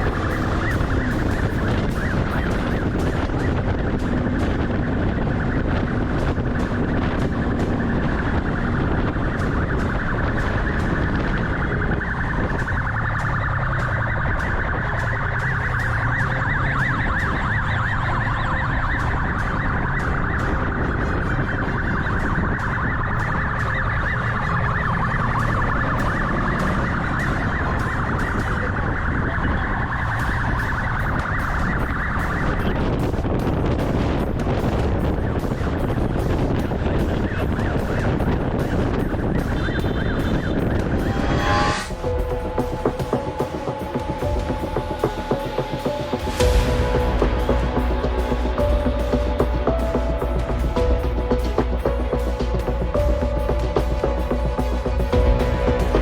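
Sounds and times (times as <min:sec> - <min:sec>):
police siren warbling: 0:00.0 - 0:33.1
vehicle rumble and wind noise: 0:00.0 - 0:56.0.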